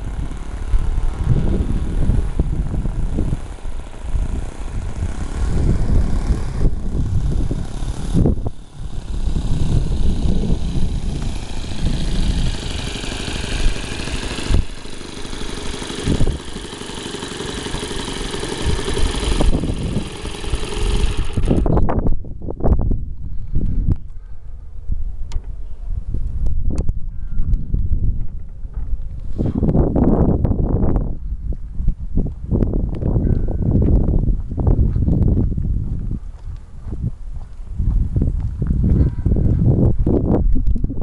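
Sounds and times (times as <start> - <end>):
model airplane motor droning: 0.0 - 22.1
heavy low rumble: 0.0 - 41.0.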